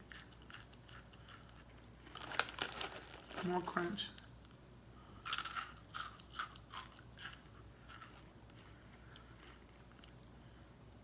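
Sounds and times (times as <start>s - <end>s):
person chewing crunchy nuts: 0.0s - 3.4s, 5.2s - 10.4s.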